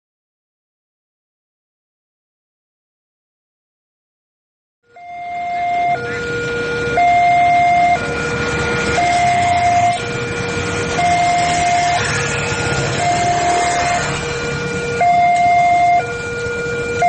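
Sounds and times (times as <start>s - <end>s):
level crossing two-tone alarm: 4.9s - 17.0s
low rumble: 5.1s - 16.9s.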